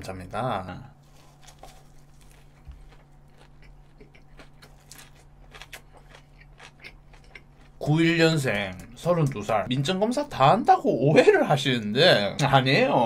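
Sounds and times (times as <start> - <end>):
person chewing food: 1.0 - 7.9.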